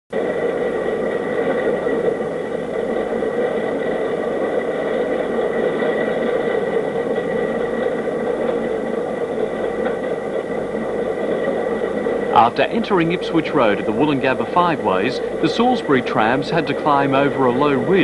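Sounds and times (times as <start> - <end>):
mechanical whir: 0.1 - 18.0
thin high whine: 0.1 - 18.0.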